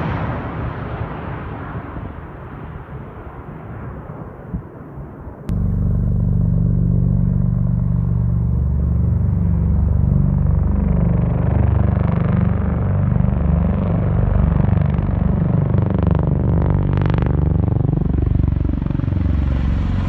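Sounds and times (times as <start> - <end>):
military aircraft passing low: 5.5 - 20.0.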